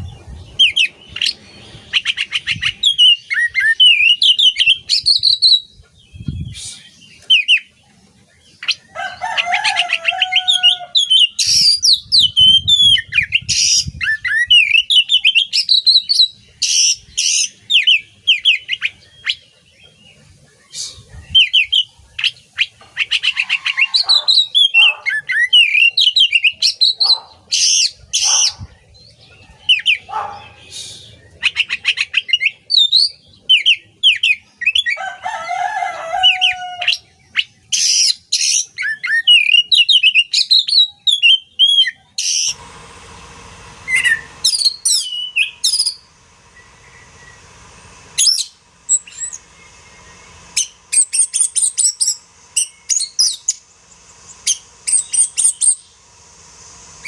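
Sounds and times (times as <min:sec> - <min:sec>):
bird singing whistled notes: 0:00.0 - 0:07.7, 0:10.3 - 0:19.5, 0:43.9 - 0:47.4.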